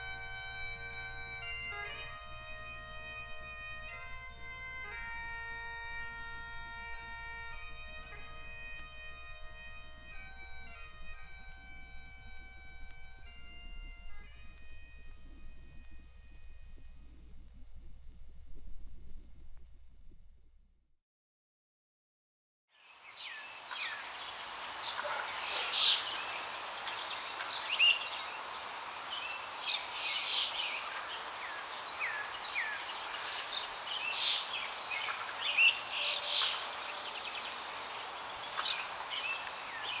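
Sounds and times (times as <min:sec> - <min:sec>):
steady outdoor hiss: 0:00.0 - 0:20.6, 0:22.7 - 0:40.0
birds chirping and calling: 0:24.8 - 0:40.0.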